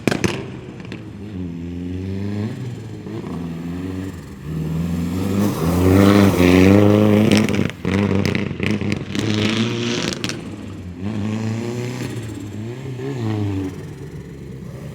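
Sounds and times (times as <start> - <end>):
sharp exhaust cracks: 0.0 - 1.6, 2.4 - 11.3
rally car engine revving: 0.0 - 14.9.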